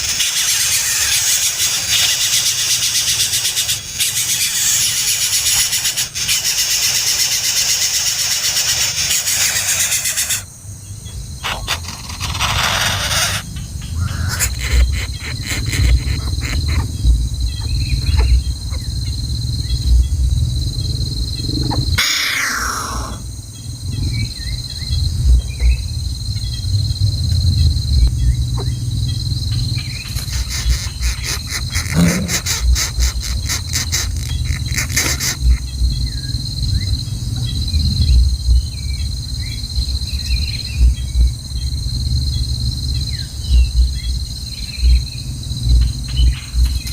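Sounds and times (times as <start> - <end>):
continuous low rumble: 0.0 - 46.9
insects buzzing: 0.0 - 46.9.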